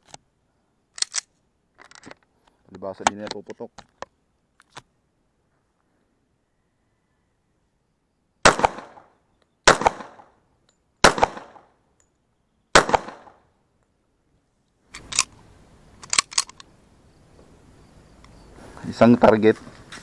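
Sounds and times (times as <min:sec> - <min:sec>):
pistol slide clicks: 0:01.0 - 0:01.3, 0:14.9 - 0:15.4, 0:16.0 - 0:16.7
pistol shots with echo: 0:08.4 - 0:10.3, 0:11.0 - 0:11.7, 0:12.7 - 0:13.4.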